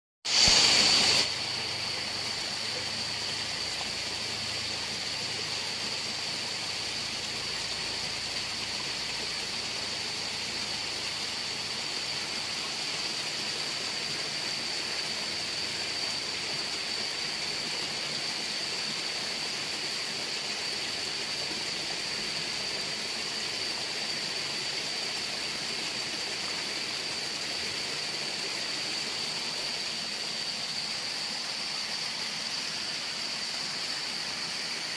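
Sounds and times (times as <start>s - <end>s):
waterfall rushing: 0.3s - 5.3s.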